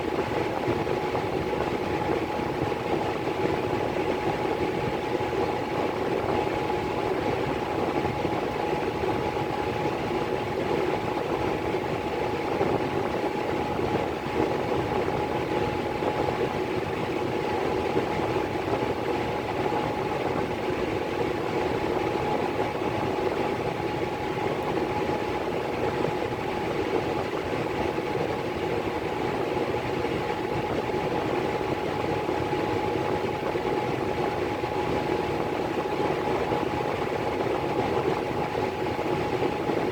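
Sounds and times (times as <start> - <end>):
furnace blower motor hum: 0.0 - 39.9.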